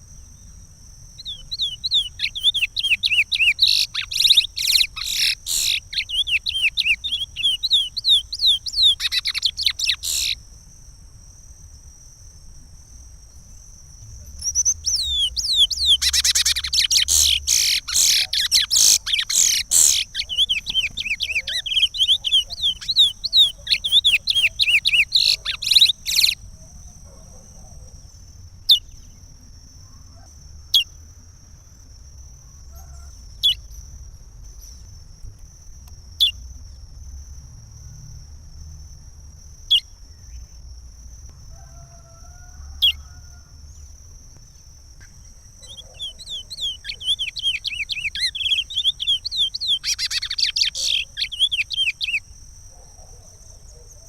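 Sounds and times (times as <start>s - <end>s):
finch whistled song: 1.2s - 10.4s, 14.4s - 26.4s, 45.6s - 52.2s.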